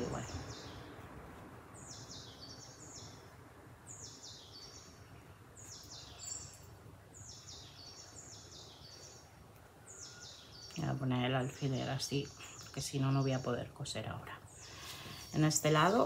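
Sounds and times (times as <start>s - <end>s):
songbird singing falling phrase: 0.0s - 1.0s.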